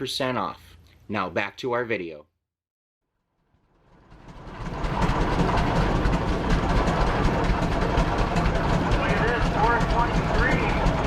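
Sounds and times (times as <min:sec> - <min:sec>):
tractor engines running: 0:03.9 - 0:11.0.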